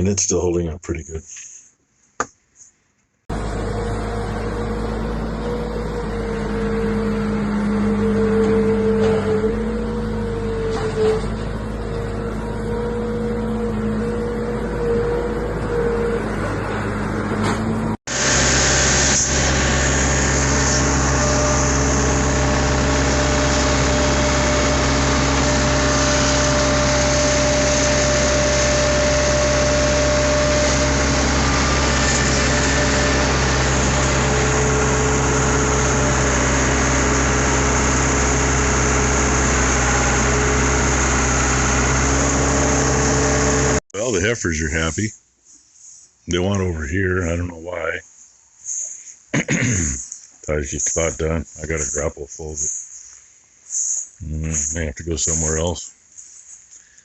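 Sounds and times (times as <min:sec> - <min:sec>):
farm machine engine running: 0:03.3 - 0:44.6.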